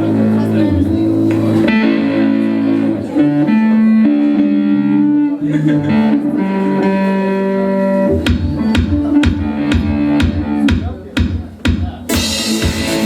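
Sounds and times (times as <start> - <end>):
guitar slow melodic line: 0.0 - 11.0, 12.0 - 13.0
drum kit: 8.0 - 13.0.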